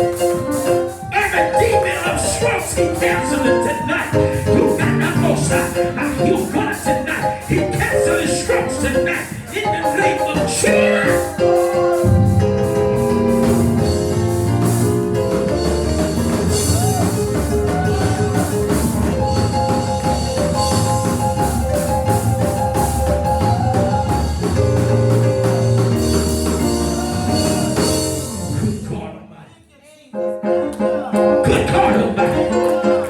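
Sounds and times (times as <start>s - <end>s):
church band music: 0.0s - 29.5s, 30.1s - 33.0s
bass: 2.4s - 6.3s, 10.4s - 29.1s.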